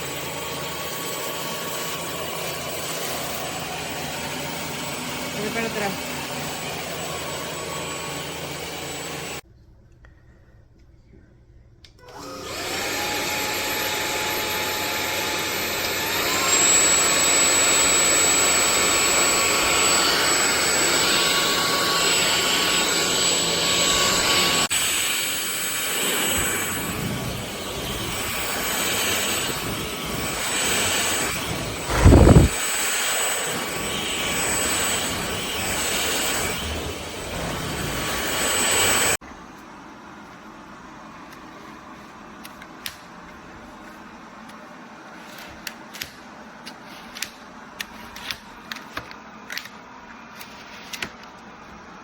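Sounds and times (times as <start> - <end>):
vacuum cleaner motor whine: 0.0 - 9.4, 12.0 - 42.4.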